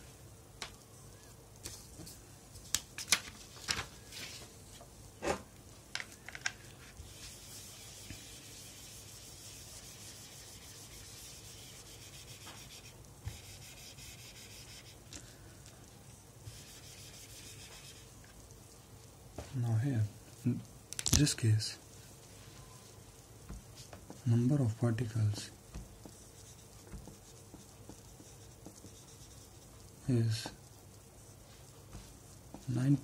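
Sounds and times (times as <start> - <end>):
faint steady rubbing: 6.6 - 20.6, 21.7 - 33.0.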